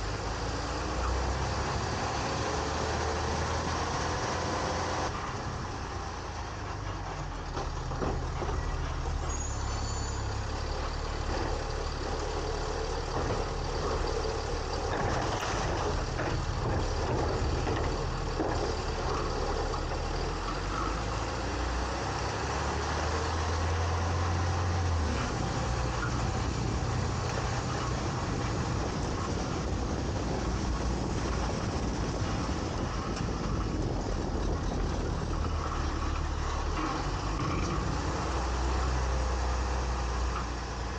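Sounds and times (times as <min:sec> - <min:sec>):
garbage truck engine running: 0:00.0 - 0:40.9.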